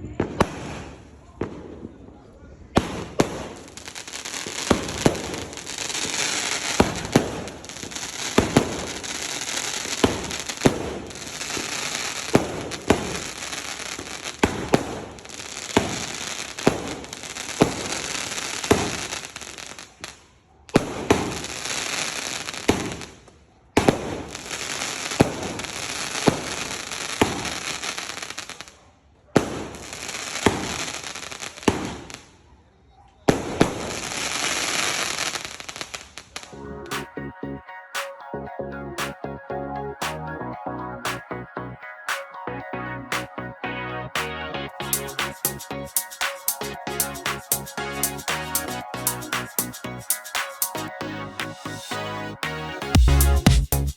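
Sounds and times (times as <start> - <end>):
firework bangs and crackling: 0.0 - 28.8, 29.4 - 32.4, 33.3 - 37.1.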